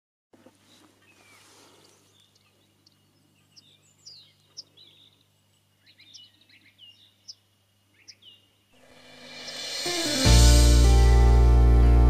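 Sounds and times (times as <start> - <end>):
small birds chirping: 0.4 - 10.2.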